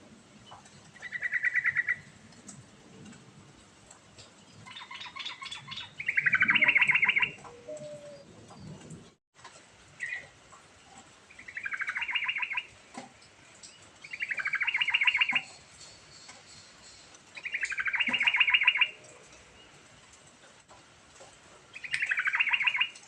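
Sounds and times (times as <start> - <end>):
bird chattering song: 4.7 - 8.2, 11.3 - 12.7, 14.0 - 19.0, 21.8 - 23.0.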